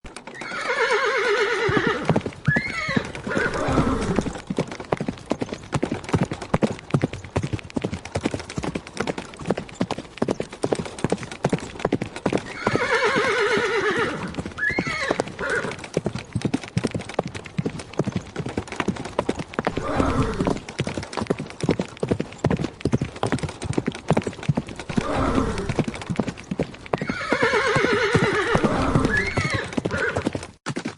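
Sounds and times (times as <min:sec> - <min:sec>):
galloping hoofbeats: 0:00.1 - 0:30.9
horse neighing: 0:00.3 - 0:04.4, 0:12.4 - 0:15.8, 0:19.7 - 0:20.6, 0:24.9 - 0:25.8, 0:27.0 - 0:30.2.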